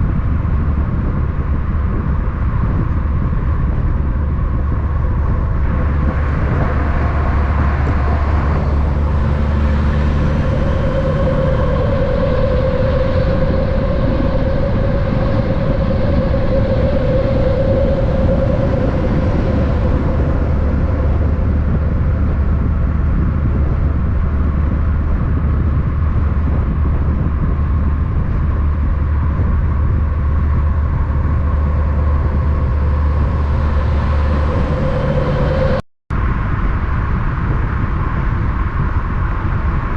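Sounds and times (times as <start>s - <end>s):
heavy vehicle engine hum: 0.0s - 39.9s
road noise: 0.0s - 39.9s
mid-pitched tone: 4.8s - 24.1s, 28.8s - 35.8s.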